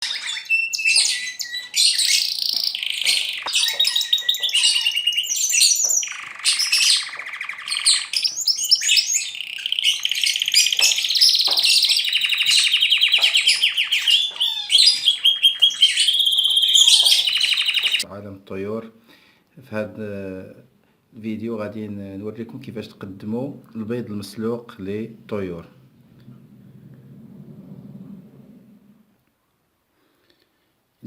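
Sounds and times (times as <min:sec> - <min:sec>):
birds chirping and trilling: 0:00.0 - 0:18.1.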